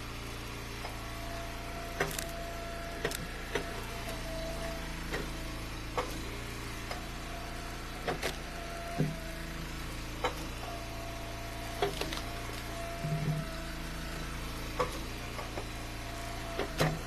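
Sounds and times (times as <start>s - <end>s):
wood splitter engine whining: 0.0s - 17.0s
wood cracking as it splits: 11.8s - 12.7s.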